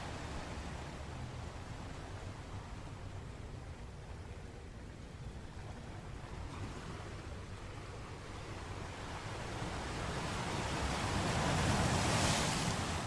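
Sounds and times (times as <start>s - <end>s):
low rumble of the sea: 0.0s - 13.0s
wave washing in: 9.6s - 13.0s.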